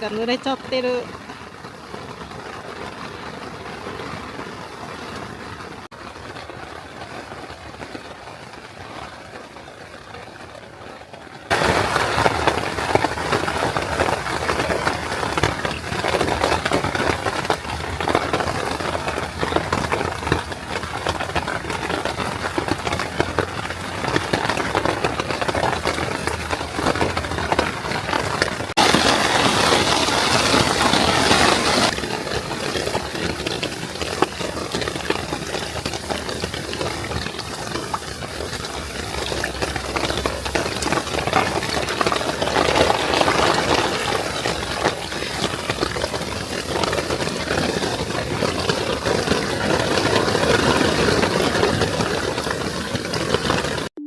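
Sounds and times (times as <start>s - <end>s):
rain pattering on a tent: 0.0s - 54.0s.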